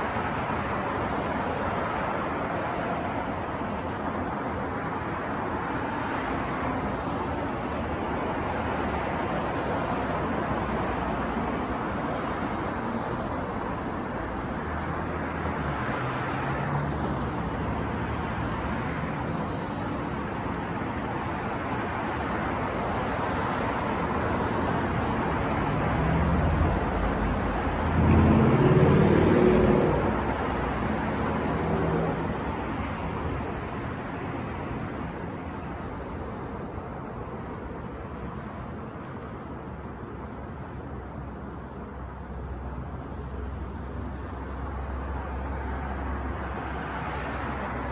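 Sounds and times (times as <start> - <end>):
street traffic passing: 0.0 - 47.9
heavy vehicle engine passing: 25.3 - 35.6.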